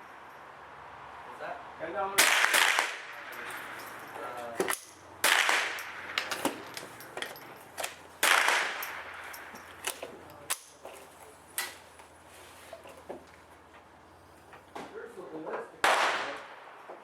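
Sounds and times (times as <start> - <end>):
quieter sharp gunshots: 2.2 - 3.4, 5.2 - 6.2, 8.2 - 9.2, 15.8 - 17.0
loud gunshots echoing: 2.2 - 3.8, 5.2 - 6.2, 8.2 - 9.3, 15.8 - 16.9.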